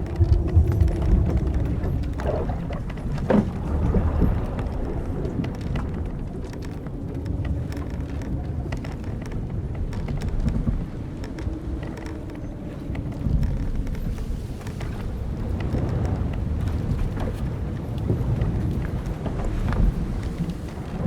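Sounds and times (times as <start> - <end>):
ship timbers creaking: 0.0 - 21.0
wind and waves rumble: 0.0 - 21.0.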